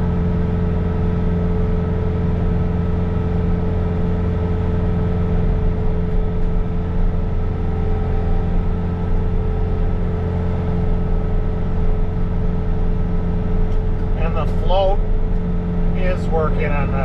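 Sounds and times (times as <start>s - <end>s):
diesel engine running steadily: 0.0s - 17.0s.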